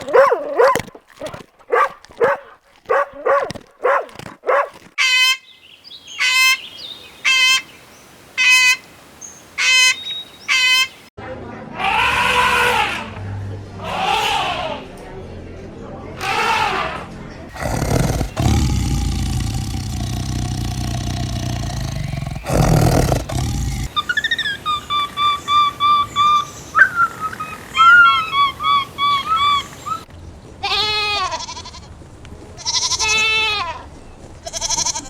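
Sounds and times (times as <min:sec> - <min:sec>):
goat bleating: 0:30.7 - 0:31.9, 0:32.6 - 0:33.8, 0:34.4 - 0:35.0.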